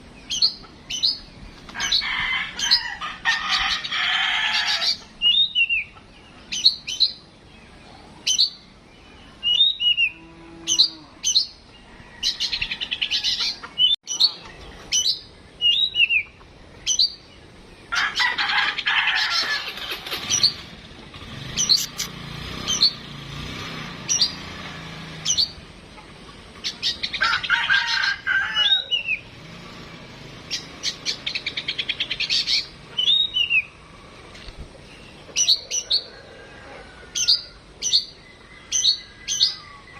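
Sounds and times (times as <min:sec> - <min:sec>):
bird whistling and chattering: 0:04.8 - 0:05.9, 0:21.5 - 0:23.0, 0:30.6 - 0:33.8.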